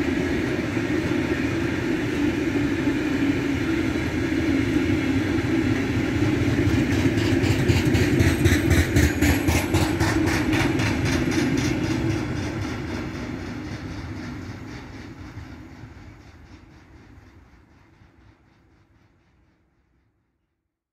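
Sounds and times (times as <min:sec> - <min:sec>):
train wheels clicking over rail joints: 0:04.7 - 0:19.7.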